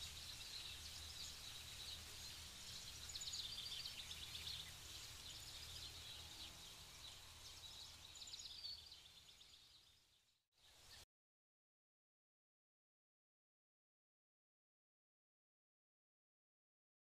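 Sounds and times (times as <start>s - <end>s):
low steady background rumble: 0.0s - 10.4s
small birds chirping: 0.0s - 11.0s.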